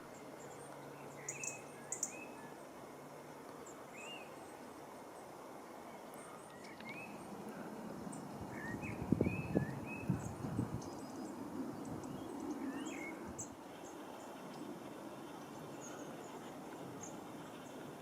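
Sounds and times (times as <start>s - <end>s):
steady background hiss: 0.0s - 18.0s
small birds chirping: 0.1s - 2.6s, 5.9s - 14.7s.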